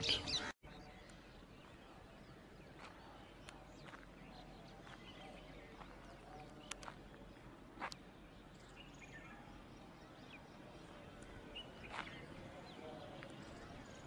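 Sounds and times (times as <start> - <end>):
bird chirps: 0.0 - 14.0
faint open-air ambience: 0.0 - 14.0.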